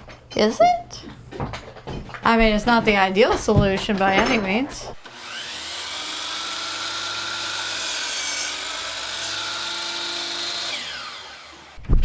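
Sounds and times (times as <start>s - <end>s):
power tool cutting wood: 5.0s - 11.9s.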